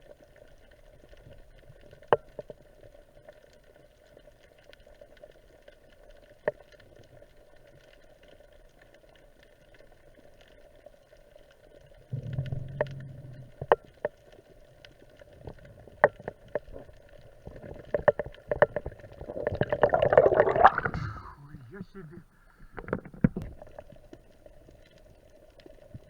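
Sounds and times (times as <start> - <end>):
underwater hum: 11.7 - 26.0
low rumble: 12.1 - 14.8
underwater clicks and knocks: 12.1 - 21.3, 22.6 - 24.2.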